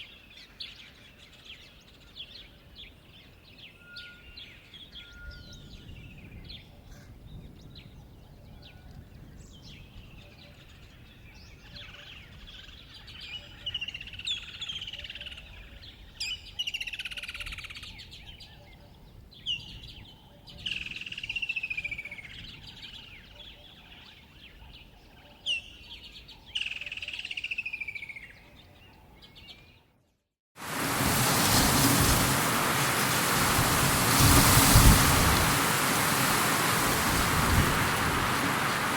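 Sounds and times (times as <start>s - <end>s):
songbird singing: 0.0s - 30.2s
bird chirps: 3.3s - 6.4s.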